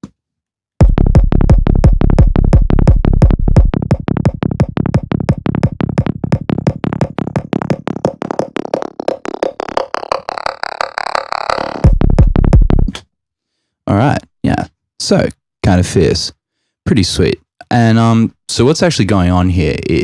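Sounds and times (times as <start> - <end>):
deep bass: 0.8 - 13.0
electronic drum and synth track: 0.8 - 13.0.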